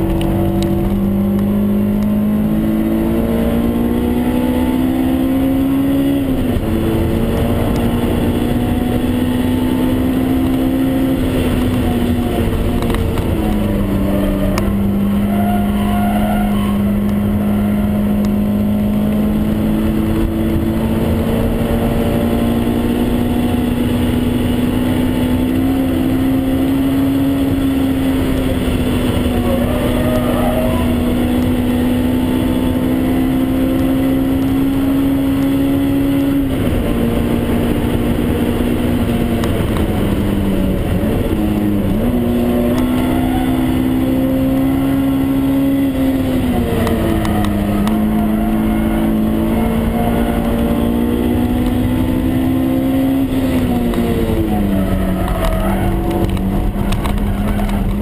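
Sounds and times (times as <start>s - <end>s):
car engine at high revs: 0.0s - 58.0s
tyre noise: 39.1s - 58.0s.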